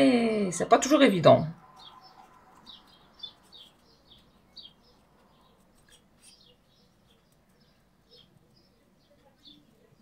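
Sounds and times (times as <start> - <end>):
small bird chirping: 1.4 - 10.0.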